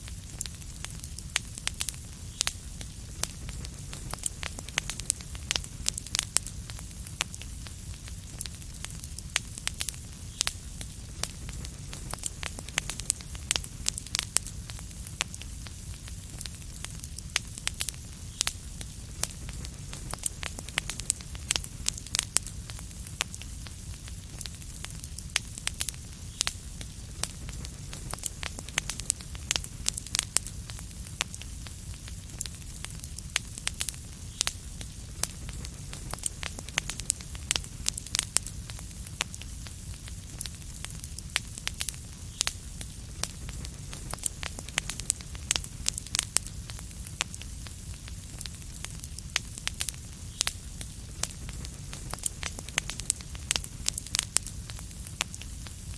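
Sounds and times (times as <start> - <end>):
wood fire crackling: 0.0 - 55.9.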